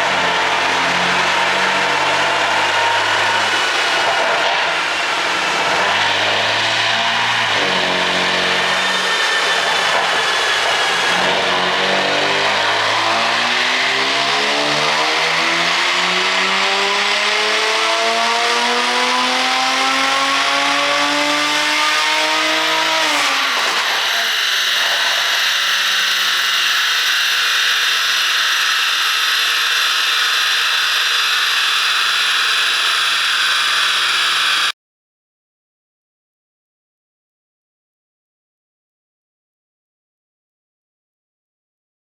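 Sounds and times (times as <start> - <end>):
engine revving at full throttle: 0.0 - 34.8
steady high whine: 22.6 - 34.7.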